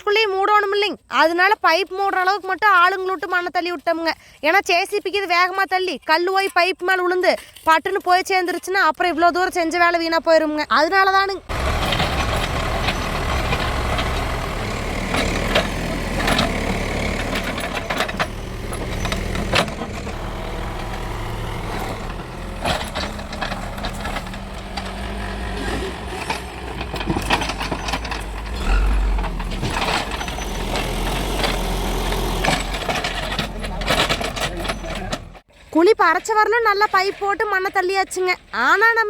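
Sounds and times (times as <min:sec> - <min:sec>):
diesel engine running: 0:10.5 - 0:35.4
knocks and scrapes: 0:11.5 - 0:35.4.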